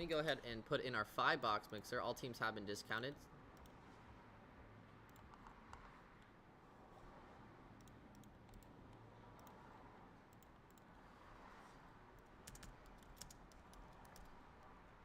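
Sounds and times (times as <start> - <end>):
keyboard typing: 7.8 - 9.6, 12.2 - 14.4.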